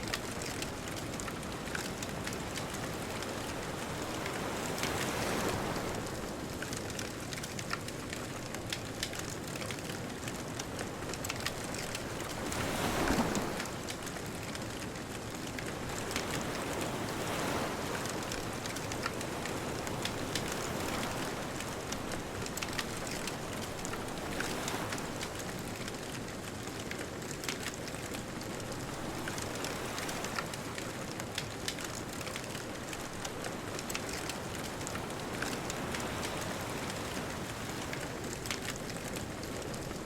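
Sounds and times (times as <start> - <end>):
bonfire crackling and popping: 0.0 - 3.6, 6.5 - 12.9, 13.5 - 40.0
ocean waves: 0.0 - 8.5, 9.8 - 40.0.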